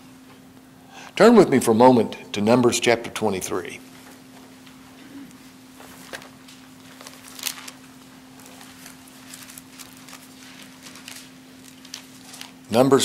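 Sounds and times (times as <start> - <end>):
pages being turned: 5.8 - 12.7.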